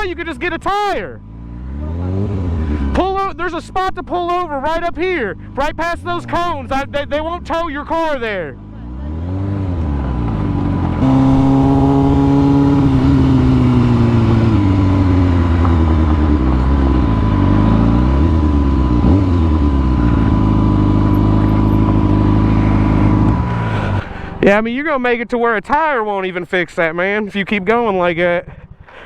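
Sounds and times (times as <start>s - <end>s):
motorcycle engine revving: 0.0s - 24.6s.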